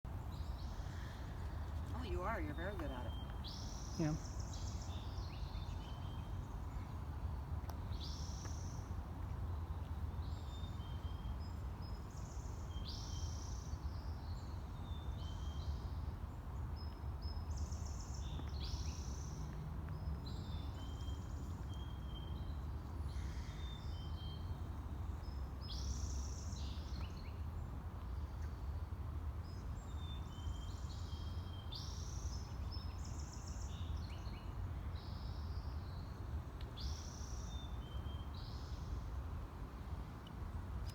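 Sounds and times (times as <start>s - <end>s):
small birds chirping: 0.1s - 7.0s.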